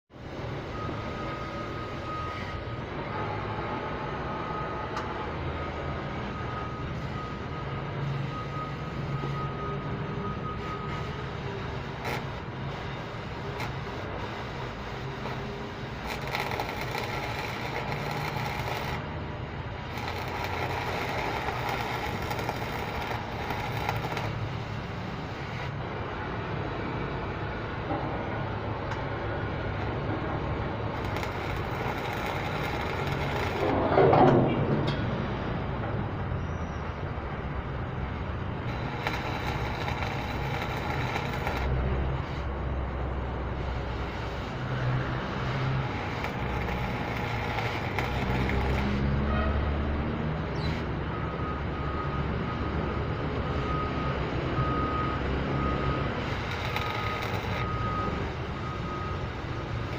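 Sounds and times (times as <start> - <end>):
reversing alarm beeping: 0.3 - 27.2, 30.6 - 33.8, 38.6 - 41.8, 44.6 - 59.9.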